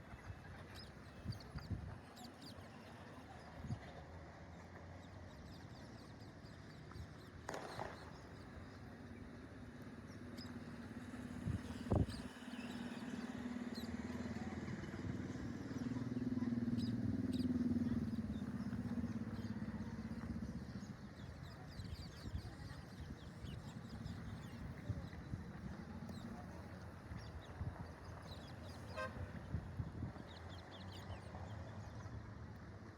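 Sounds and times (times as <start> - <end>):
motor vehicle engine hum: 8.5 - 32.9.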